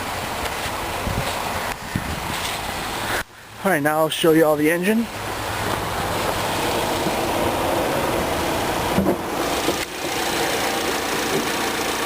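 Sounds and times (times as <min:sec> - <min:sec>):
car engine idling: 0:05.0 - 0:12.0.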